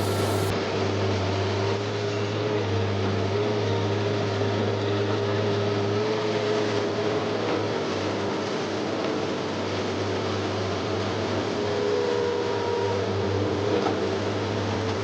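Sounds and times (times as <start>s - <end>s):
excavator diesel engine running: 0.0s - 0.5s.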